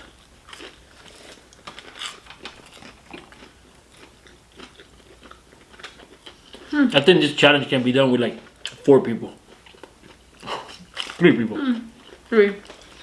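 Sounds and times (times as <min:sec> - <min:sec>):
chewing crunches: 0:00.0 - 0:06.8, 0:09.4 - 0:13.0.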